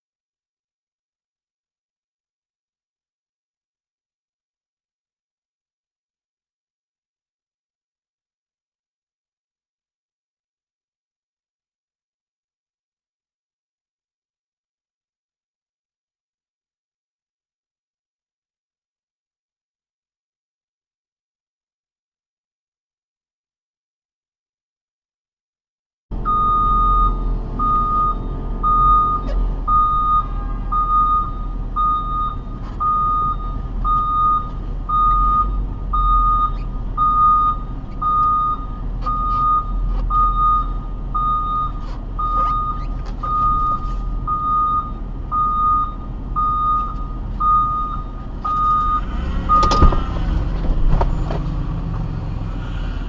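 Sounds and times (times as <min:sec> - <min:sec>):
engine and road rumble: 0:26.1 - 0:53.0
vehicle warning beep: 0:26.2 - 0:50.2
sharp knocks: 0:49.6 - 0:51.5.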